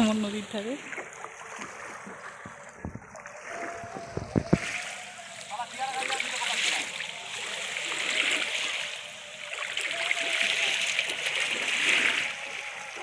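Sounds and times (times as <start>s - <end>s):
waves washing against steps: 0.0s - 13.0s.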